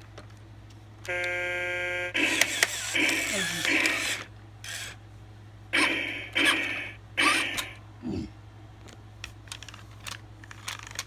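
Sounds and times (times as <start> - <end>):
toy electric motor bursts: 2.2 - 5.0, 5.8 - 7.8.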